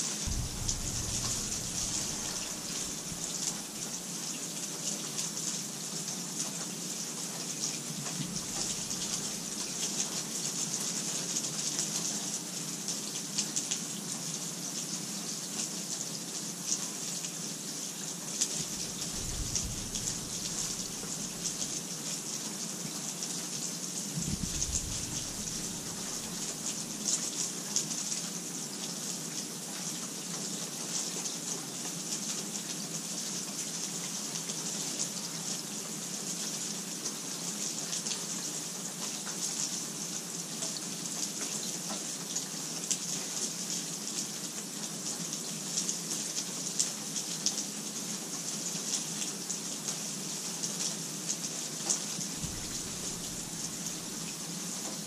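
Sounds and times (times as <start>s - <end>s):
steady rain: 0.0s - 55.0s
raindrops pattering: 0.2s - 11.5s, 18.3s - 22.8s, 23.8s - 29.2s, 50.7s - 55.0s.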